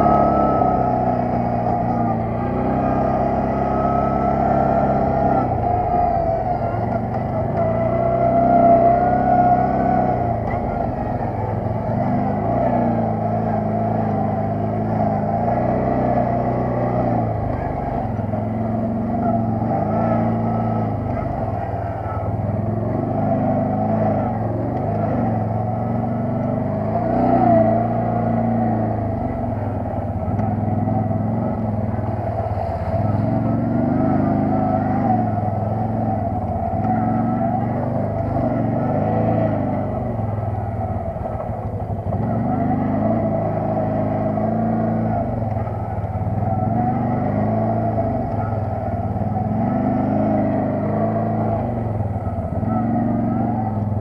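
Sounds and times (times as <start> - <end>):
quad bike engine revving: 0.0 - 54.0.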